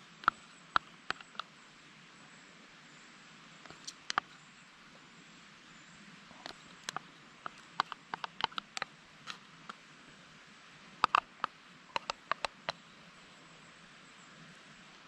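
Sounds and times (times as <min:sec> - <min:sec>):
faint steady hiss: 0:00.0 - 0:15.0
campfire crackling pops and snaps: 0:11.0 - 0:12.8.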